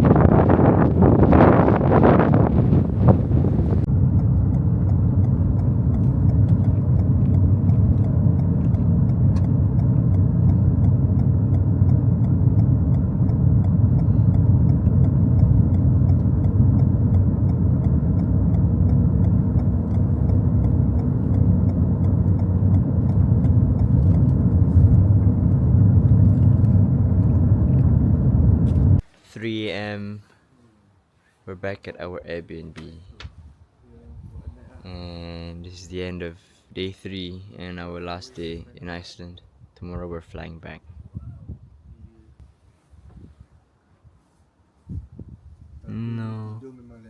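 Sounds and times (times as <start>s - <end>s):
car road and engine rumble: 0.0s - 29.2s.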